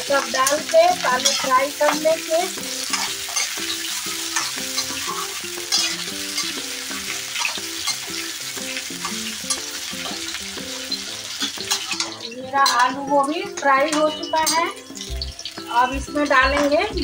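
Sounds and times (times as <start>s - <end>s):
vegetables sizzling in hot oil: 0.0s - 17.0s
metal spatula scraping a pan: 0.1s - 15.2s.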